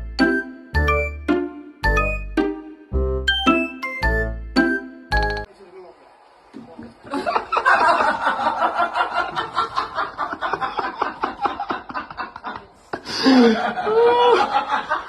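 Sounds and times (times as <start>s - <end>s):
person laughing: 8.8s - 15.0s.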